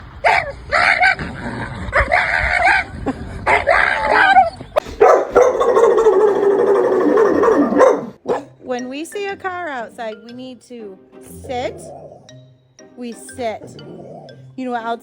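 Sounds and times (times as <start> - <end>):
dog yipping: 0.2 - 1.2, 3.5 - 8.5.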